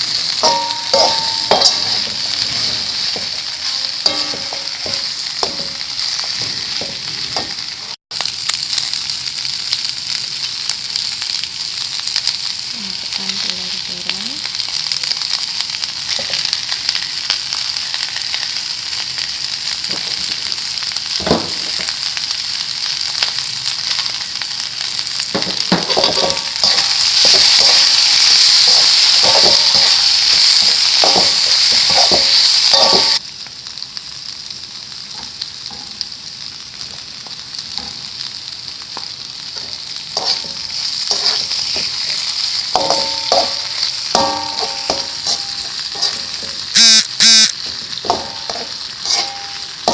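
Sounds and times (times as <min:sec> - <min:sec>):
egg sizzling in hot oil: 0:00.0 - 0:49.9
spatula scraping a pan: 0:00.3 - 0:07.6, 0:39.6 - 0:46.7, 0:47.9 - 0:49.9.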